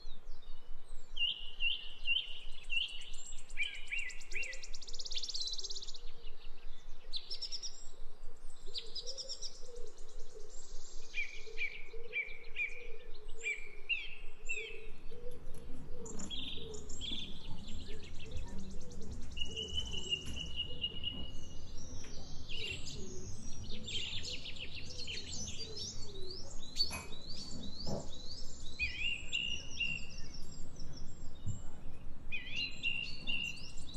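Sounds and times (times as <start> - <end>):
songbirds chirping and calling: 0.0 - 33.9.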